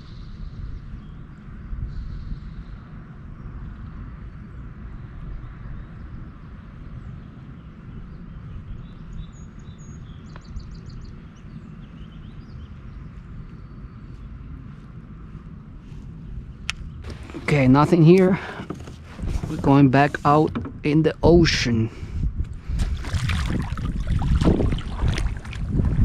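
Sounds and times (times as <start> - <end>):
low outdoor rumble: 0.0 - 26.0
birds chirping: 5.3 - 21.8.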